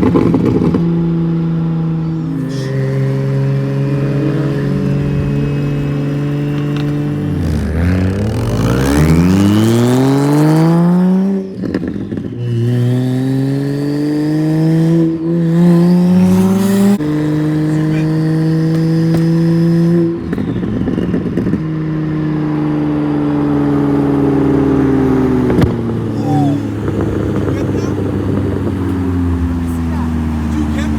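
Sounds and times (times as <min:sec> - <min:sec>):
car engine accelerating hard: 0:00.0 - 0:30.9.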